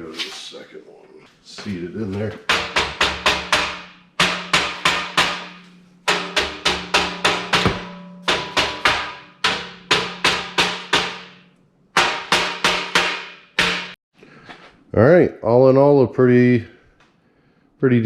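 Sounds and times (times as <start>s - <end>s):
hammer blows on steel: 2.3s - 14.0s.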